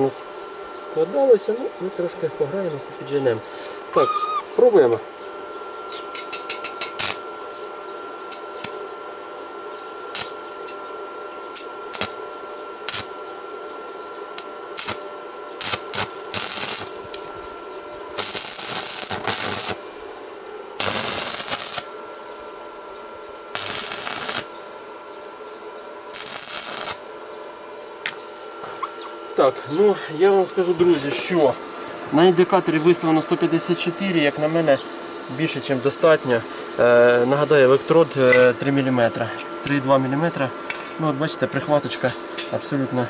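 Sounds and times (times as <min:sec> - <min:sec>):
steady background hum: 0:00.0 - 0:43.0
crackling welding arc: 0:04.0 - 0:05.0, 0:06.2 - 0:07.3, 0:08.3 - 0:08.8, 0:10.1 - 0:10.8, 0:11.5 - 0:12.2, 0:12.8 - 0:13.2, 0:14.4 - 0:15.0, 0:15.6 - 0:17.4, 0:18.1 - 0:20.0, 0:20.8 - 0:22.0, 0:23.5 - 0:24.6, 0:26.1 - 0:27.1.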